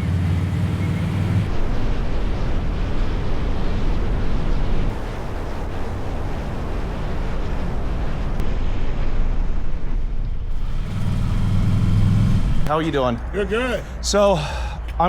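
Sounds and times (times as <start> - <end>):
motorcycle engine rumble: 0.0 - 1.8, 9.0 - 13.2
wind rushing over microphone: 1.4 - 13.4.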